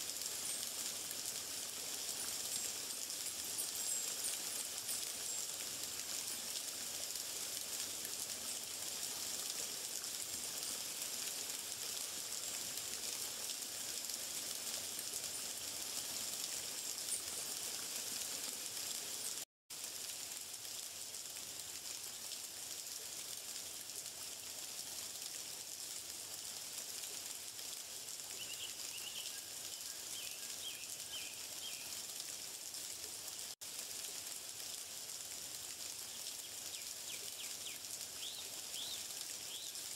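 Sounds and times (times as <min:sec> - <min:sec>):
high outdoor hiss: 0:00.0 - 0:39.9
faint chirps: 0:02.1 - 0:05.5.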